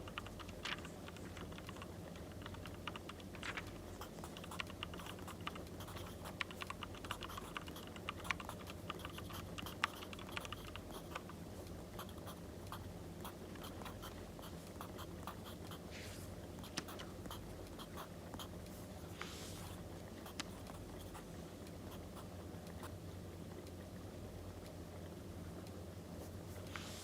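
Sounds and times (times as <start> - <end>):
scratchy paper rustle: 0.4 - 7.6.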